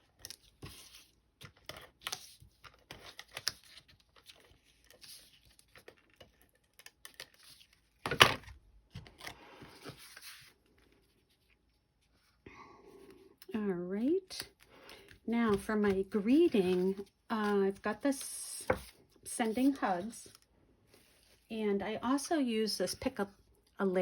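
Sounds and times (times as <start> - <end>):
paper rustling: 0.0 - 12.3, 14.9 - 21.5.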